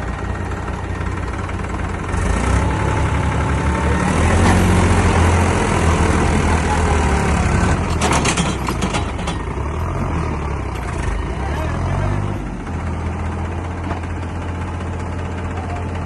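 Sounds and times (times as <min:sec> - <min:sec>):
tractor diesel engine under load: 0:00.0 - 0:16.0.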